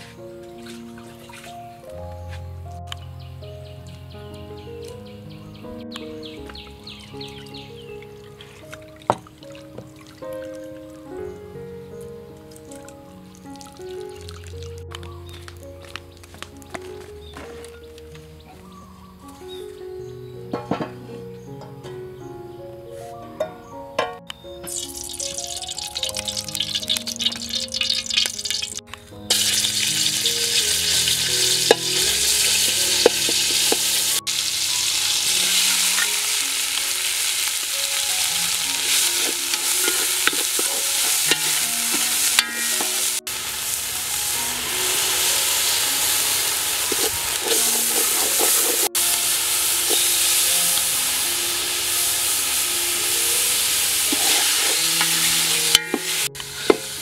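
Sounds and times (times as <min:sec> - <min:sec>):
paste sizzling in a pot: 0:24.7 - 0:57.0.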